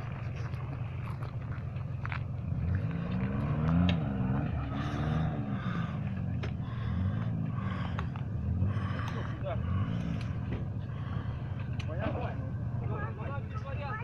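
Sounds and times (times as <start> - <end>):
off-road engine revving: 0.0 - 14.0
knocks and clunks: 10.3 - 10.8.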